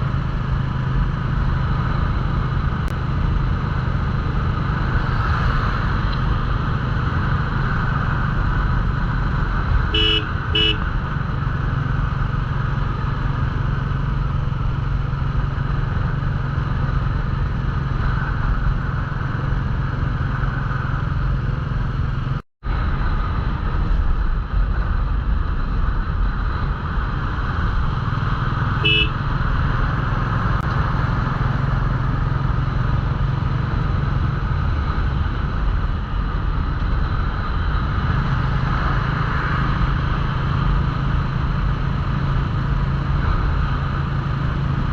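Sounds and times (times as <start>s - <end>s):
motorcycle engine running: 0.0s - 44.9s
wind and road noise: 0.0s - 44.9s
vehicle horn beeps: 9.9s - 10.9s, 28.8s - 29.2s.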